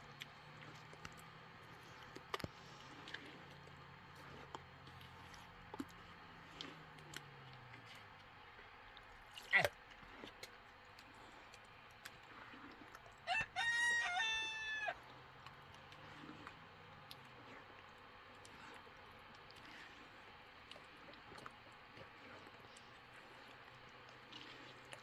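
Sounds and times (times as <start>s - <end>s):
rooster crowing: 13.2s - 15.0s.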